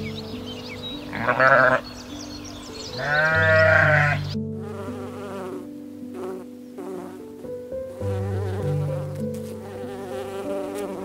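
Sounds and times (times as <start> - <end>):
soft piano music: 0.0 - 11.0
bee buzzing: 3.0 - 11.0.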